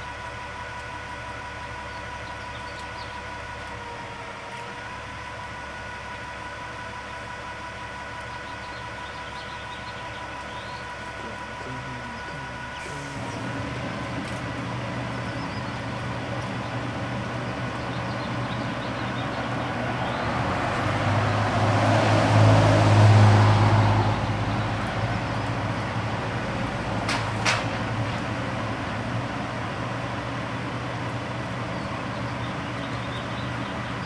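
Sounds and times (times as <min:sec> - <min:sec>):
steady low hum: 0:00.0 - 0:34.0
vehicle driving past: 0:12.8 - 0:30.2.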